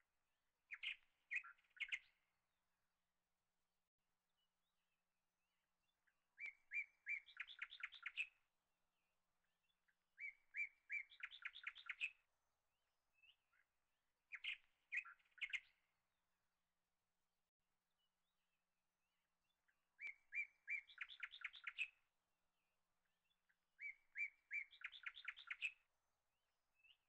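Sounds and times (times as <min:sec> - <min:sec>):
small bird singing: 0:00.7 - 0:02.2, 0:05.9 - 0:08.4, 0:09.4 - 0:12.3, 0:13.1 - 0:13.7, 0:14.3 - 0:15.9, 0:19.4 - 0:22.1, 0:23.0 - 0:25.9, 0:26.8 - 0:27.0.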